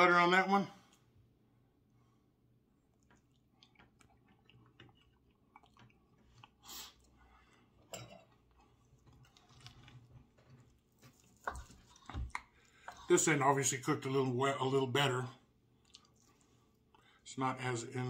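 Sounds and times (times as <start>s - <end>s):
chewing steak: 2.8s - 13.4s, 15.7s - 17.2s.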